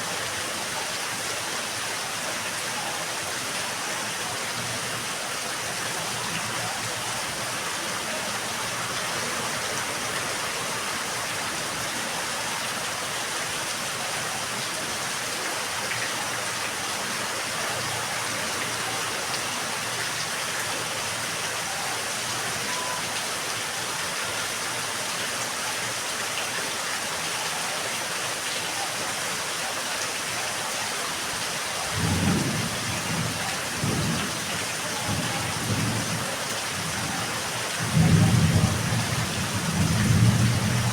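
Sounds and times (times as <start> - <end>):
steady rain hiss: 0.0 - 40.9
thunder rumbling: 32.0 - 36.2, 37.8 - 40.9.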